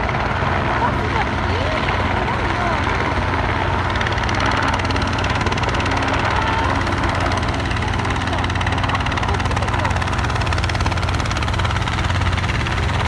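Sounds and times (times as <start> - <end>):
helicopter rotor and engine drone: 0.0 - 13.0.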